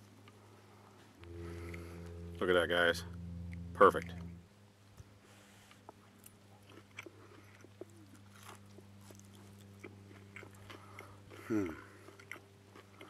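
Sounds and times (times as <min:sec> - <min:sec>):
man humming: 0:01.2 - 0:04.4, 0:11.4 - 0:11.9
wet mouth clicks chewing: 0:06.6 - 0:13.0.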